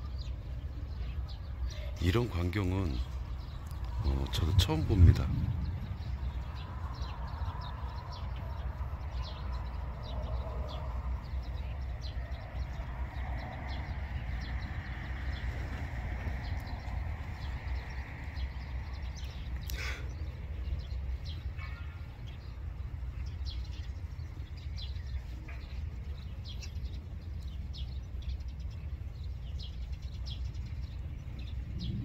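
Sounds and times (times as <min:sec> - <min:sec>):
birds chirping: 0:00.0 - 0:32.0
low steady rumble: 0:02.8 - 0:09.0, 0:31.1 - 0:32.0.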